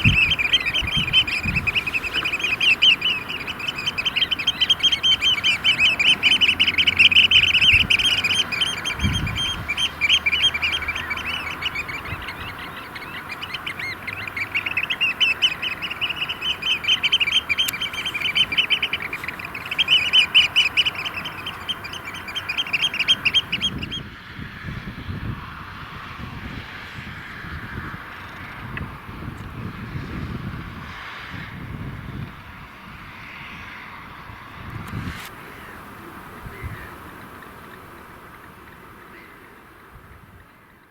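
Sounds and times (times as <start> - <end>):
birds shrill piping calls: 0.0 - 24.0.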